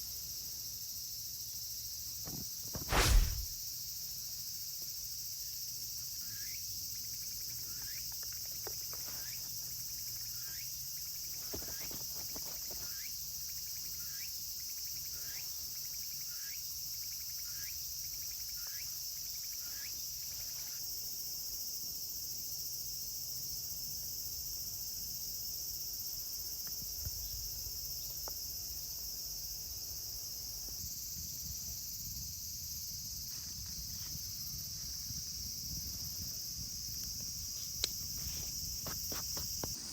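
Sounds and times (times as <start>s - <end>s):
crickets and insects chorus: 0.0s - 39.9s
short rising chirps: 2.9s - 3.5s.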